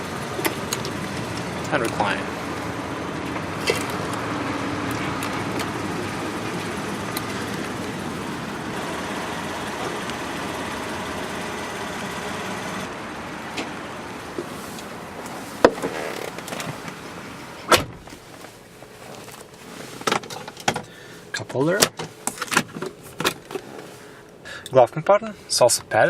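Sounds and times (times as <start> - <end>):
car cabin running noise: 0.0 - 24.2
sharp clicks of interior parts: 0.2 - 2.2, 3.2 - 8.0, 19.2 - 24.8.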